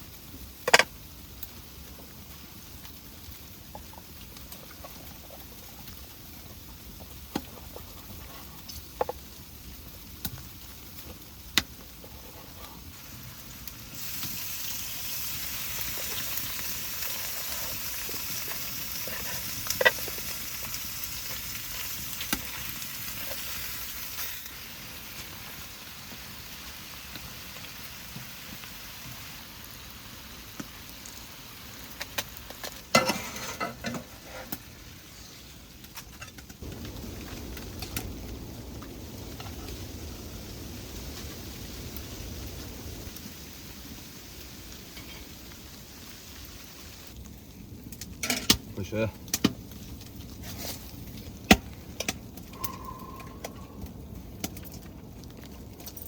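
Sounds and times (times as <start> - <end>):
sharp pops and crackles: 0.1 - 29.4, 30.3 - 34.7, 35.7 - 43.4, 47.1 - 56.0
food sizzling in a pan: 8.1 - 47.6.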